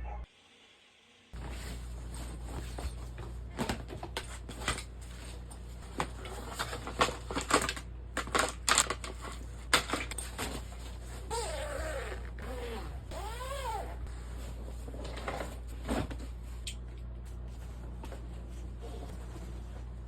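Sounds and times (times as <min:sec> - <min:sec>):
steady low hum: 0:01.4 - 0:20.0.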